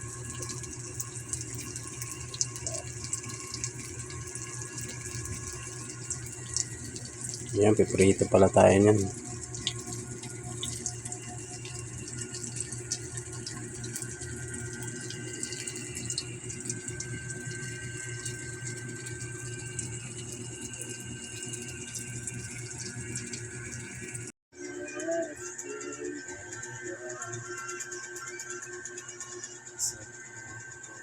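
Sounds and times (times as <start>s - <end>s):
food sizzling in hot oil: 0.0s - 24.3s
low steady hum: 0.0s - 30.6s.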